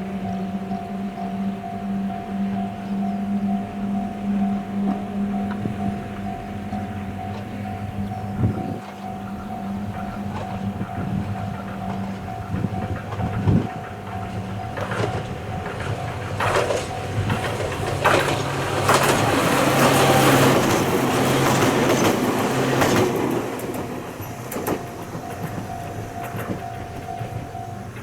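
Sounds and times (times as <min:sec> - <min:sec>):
thin steady high tone: 0:00.0 - 0:16.3
electric train passing: 0:00.0 - 0:28.0
train wheels clicking over rail joints: 0:00.0 - 0:28.0.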